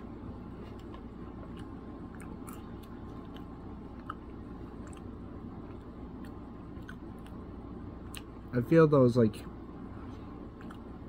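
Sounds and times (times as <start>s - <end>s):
low background hum: 0.0s - 11.0s
person chewing potato chips: 0.5s - 7.4s, 10.5s - 11.0s.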